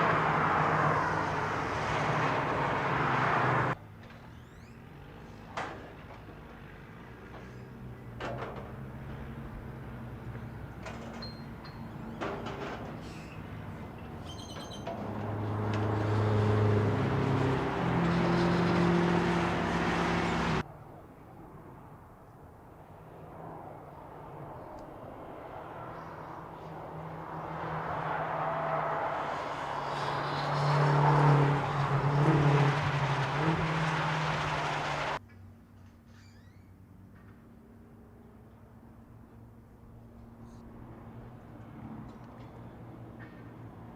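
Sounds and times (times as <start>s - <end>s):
car engine humming: 26.9s - 35.2s.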